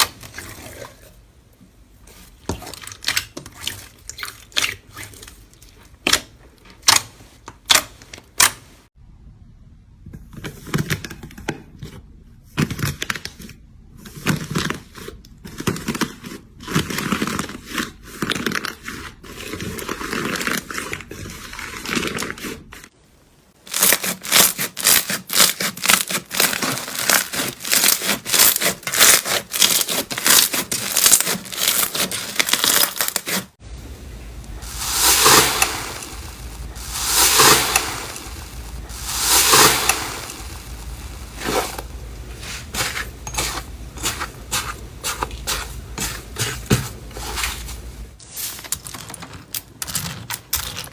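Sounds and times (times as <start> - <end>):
slime squishing and crackling: 14.1 - 22.9, 23.6 - 33.6, 34.4 - 47.9.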